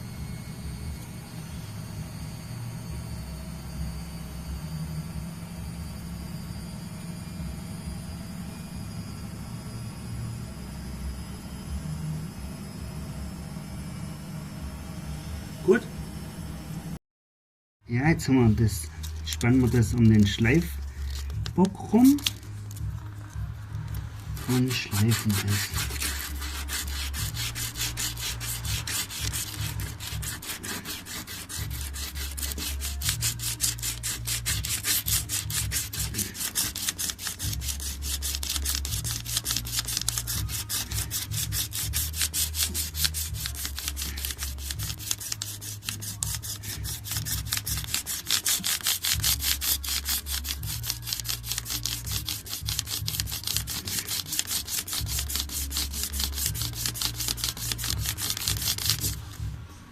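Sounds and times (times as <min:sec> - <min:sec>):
sandpaper scraping filler: 0:24.4 - 0:59.3.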